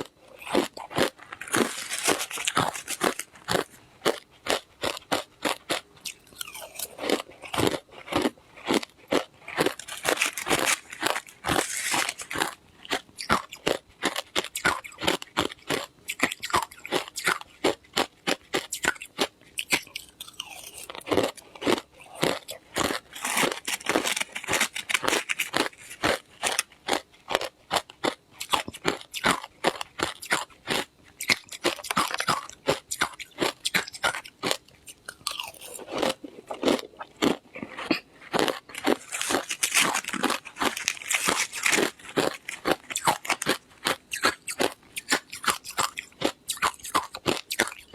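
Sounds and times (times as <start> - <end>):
ice being crunched: 1.0 - 3.7, 9.5 - 12.6, 22.8 - 26.6, 38.3 - 44.7.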